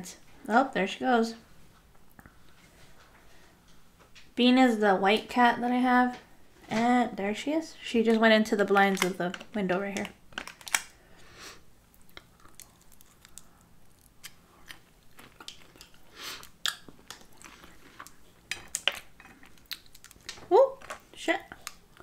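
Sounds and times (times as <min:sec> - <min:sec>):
wet chewing with smacks: 0:11.9 - 0:20.4.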